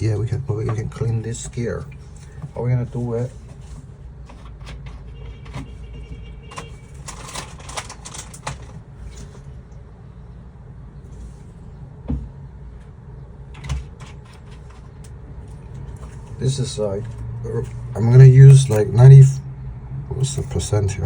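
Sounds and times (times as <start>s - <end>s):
clicks and rattles of handled objects: 3.3s - 9.5s, 13.5s - 17.9s
thump: 12.1s - 12.4s.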